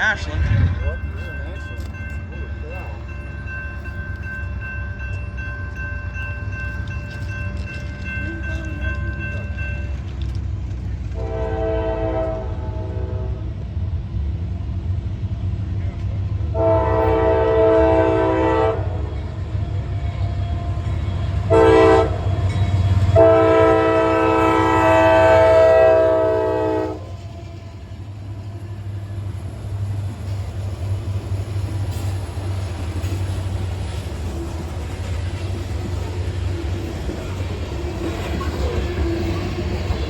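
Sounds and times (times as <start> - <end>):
diesel locomotive rumble: 0.0 - 40.0
locomotive air horn: 11.2 - 13.6, 16.5 - 19.1, 21.5 - 22.3, 23.1 - 27.4.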